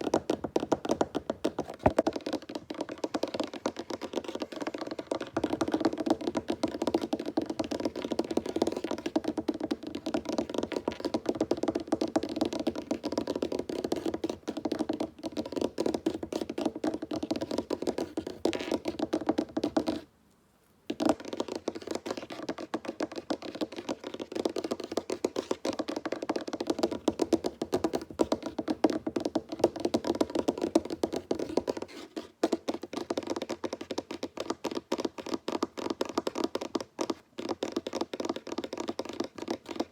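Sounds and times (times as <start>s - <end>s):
fingertips tapping on wooden table: 20.9s - 39.9s.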